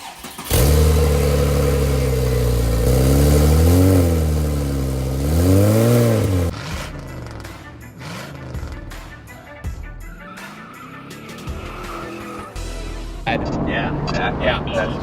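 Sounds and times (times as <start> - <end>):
car engine starting and idling: 0.0 - 9.2.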